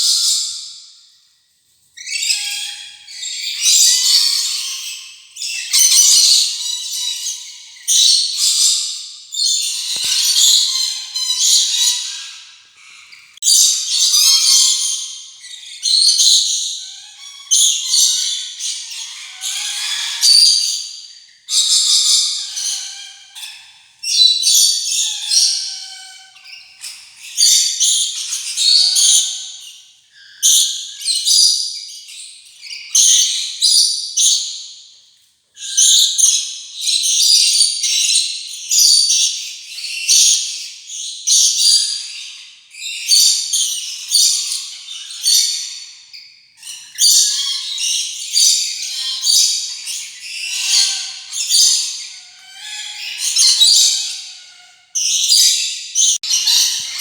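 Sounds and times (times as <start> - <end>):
lorikeets chattering and screeching: 2.0 - 29.7, 46.6 - 57.0.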